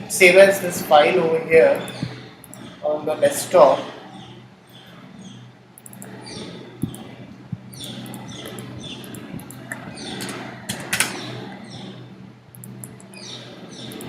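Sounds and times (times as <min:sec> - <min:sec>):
steady electrical hum: 0:00.0 - 0:14.0
computer mouse clicks: 0:01.8 - 0:02.8, 0:05.8 - 0:11.6, 0:12.5 - 0:13.2, 0:13.8 - 0:14.0.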